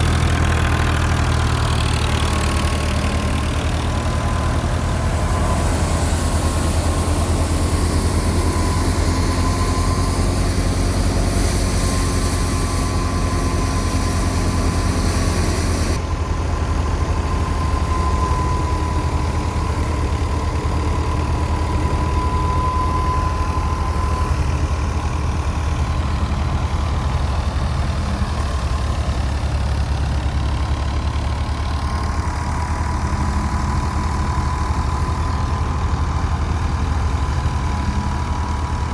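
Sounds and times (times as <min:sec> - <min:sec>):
diesel tractor engine rumble: 0:00.0 - 0:38.9
thin steady whine: 0:00.0 - 0:38.9
high hiss: 0:03.2 - 0:16.0.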